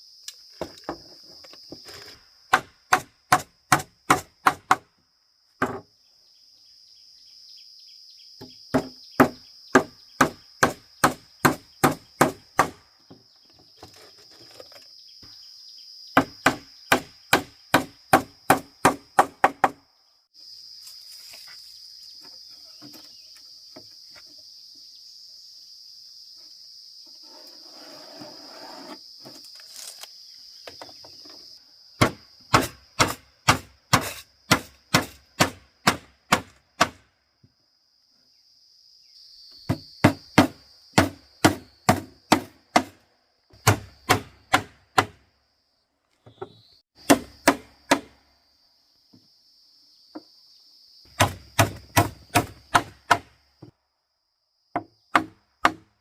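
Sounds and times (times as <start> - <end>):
high insect drone: 0.0 - 56.0.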